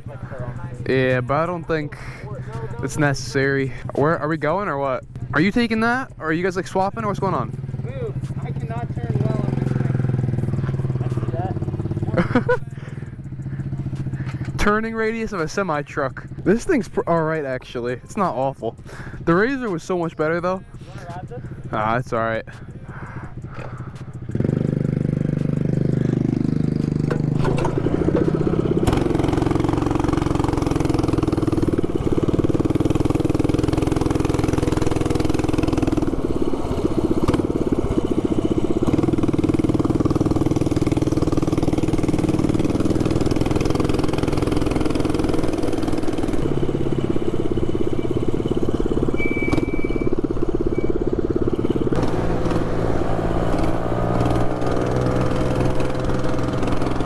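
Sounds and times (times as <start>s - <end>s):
mini bike engine revving: 7.1s - 14.7s, 23.1s - 57.0s.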